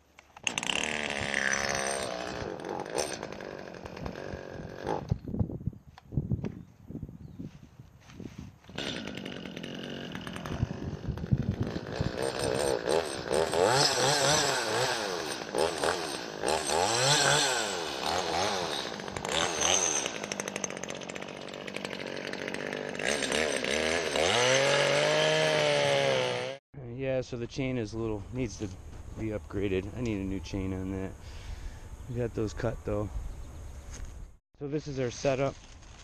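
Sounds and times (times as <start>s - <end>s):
chainsaw cutting log: 0.2s - 5.2s, 8.6s - 26.6s.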